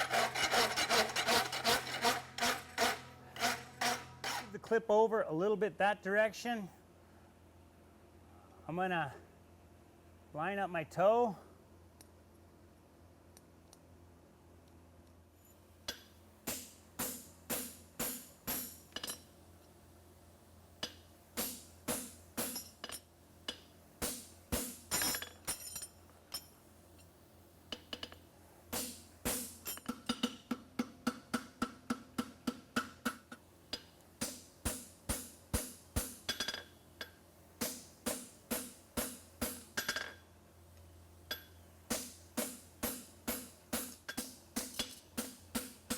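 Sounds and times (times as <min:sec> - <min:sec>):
hammer striking horseshoe on anvil: 0:15.9 - 0:19.3, 0:20.8 - 0:26.5, 0:28.8 - 0:40.2, 0:41.3 - 0:45.9.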